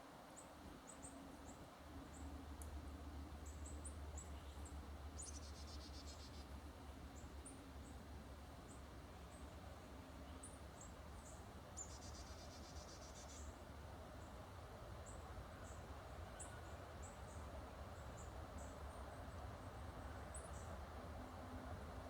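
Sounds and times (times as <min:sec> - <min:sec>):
songbird chip calls: 0:05.2 - 0:06.5, 0:11.8 - 0:13.5.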